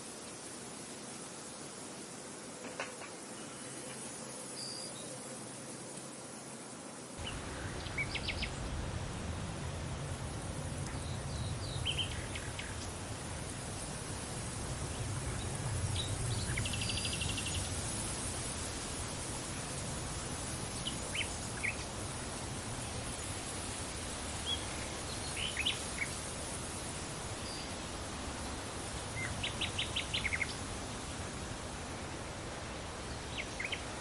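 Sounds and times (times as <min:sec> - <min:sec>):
wind: 0:00.0 - 0:34.0
small birds chirping: 0:07.2 - 0:08.8, 0:10.8 - 0:13.1, 0:28.5 - 0:30.6, 0:33.1 - 0:34.0.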